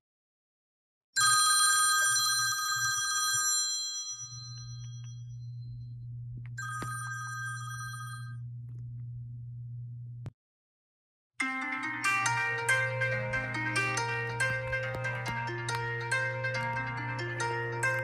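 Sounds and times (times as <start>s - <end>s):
bell ringing: 1.2s - 5.6s, 6.6s - 8.4s, 11.4s - 18.0s
steady low hum: 4.4s - 10.3s.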